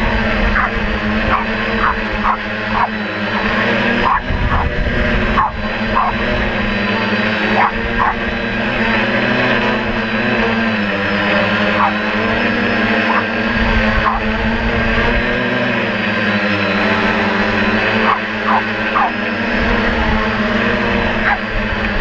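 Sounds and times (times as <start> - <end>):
wind on microphone: 0.0 - 7.0
drone motors humming: 0.0 - 22.0.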